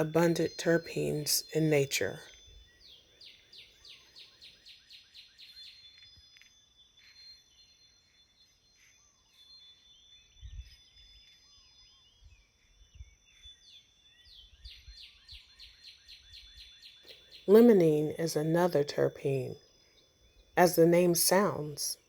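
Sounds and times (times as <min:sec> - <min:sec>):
soft bird chirps: 0:02.2 - 0:18.0.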